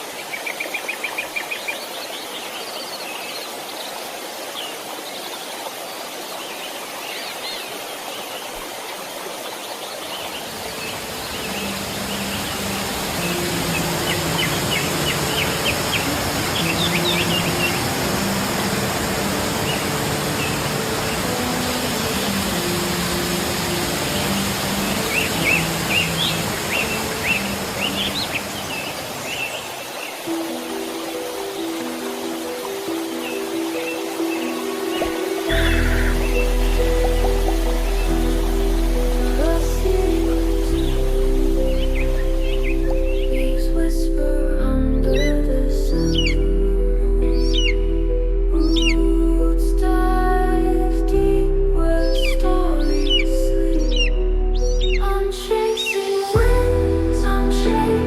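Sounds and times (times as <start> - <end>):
birds chirping: 0.0 - 43.7, 46.0 - 46.5, 47.4 - 47.8
waterfall rushing: 0.0 - 44.4, 55.3 - 58.0
soft background music: 1.1 - 58.0.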